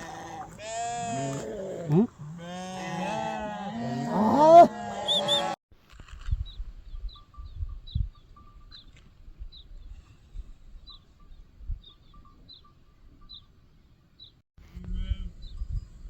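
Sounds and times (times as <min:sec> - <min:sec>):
bird chirping: 0:10.8 - 0:14.4.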